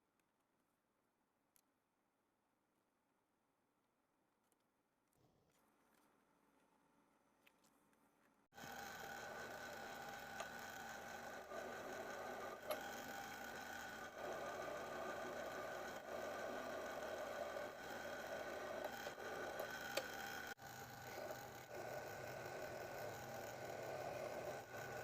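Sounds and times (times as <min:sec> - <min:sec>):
power tool motor running: 0:08.5 - 0:25.0.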